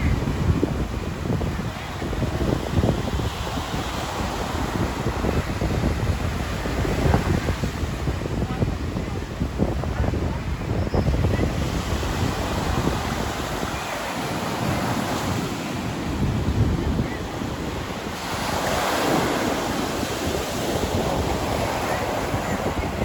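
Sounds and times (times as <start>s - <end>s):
surf breaking on beach: 0.0s - 23.0s
wind buffeting microphone: 0.0s - 23.0s.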